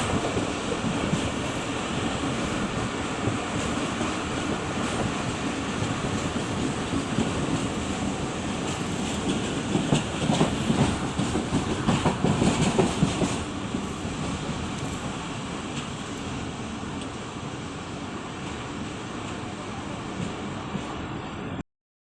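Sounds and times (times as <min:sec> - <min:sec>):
train wheels clattering on rails: 0:00.0 - 0:20.4
train rumble: 0:00.0 - 0:21.6.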